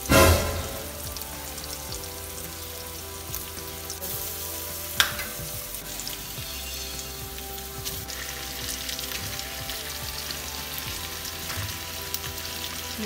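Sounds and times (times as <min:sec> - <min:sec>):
loud sudden burst: 0:00.0 - 0:01.3
faint background music: 0:00.0 - 0:13.0
onion sizzling in oil: 0:00.0 - 0:13.0.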